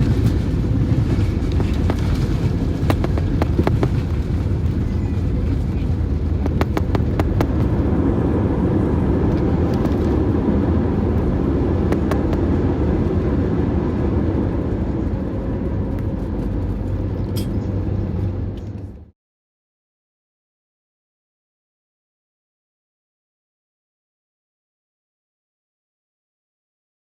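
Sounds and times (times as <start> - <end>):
aircraft cabin rumble: 0.0 - 19.2.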